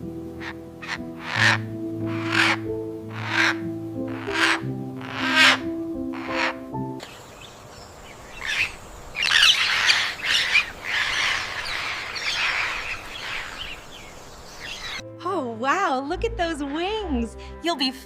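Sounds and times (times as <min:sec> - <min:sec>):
music: 0:00.0 - 0:07.0, 0:14.8 - 0:18.0
parrots squawking and chirping: 0:00.4 - 0:07.2, 0:08.2 - 0:15.0.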